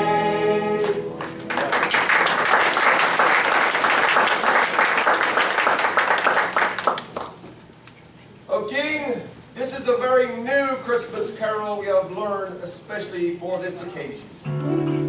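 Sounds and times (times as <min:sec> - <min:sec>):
choir singing held chord: 0:00.0 - 0:01.2
audience clapping: 0:00.8 - 0:07.5.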